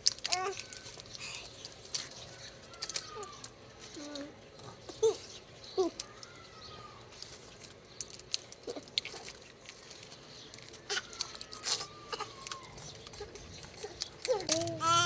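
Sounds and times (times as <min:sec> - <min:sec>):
baby parrots squeaking: 0:14.6 - 0:15.0.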